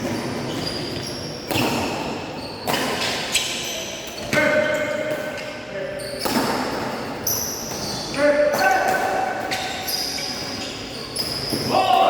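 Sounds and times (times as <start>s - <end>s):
racket hitting shuttlecock: 1.4s - 3.5s, 6.2s - 7.0s.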